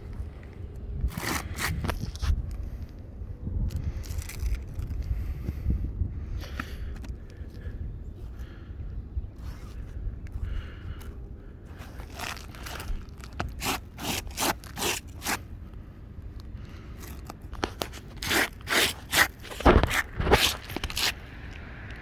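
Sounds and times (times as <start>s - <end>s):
short sharp scraping strokes: 17.0s - 21.2s.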